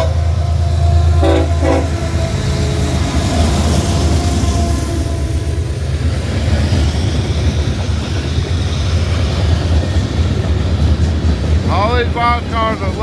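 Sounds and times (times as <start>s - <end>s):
locomotive horn: 0.0s - 5.8s
freight train rumbling past: 0.0s - 13.0s.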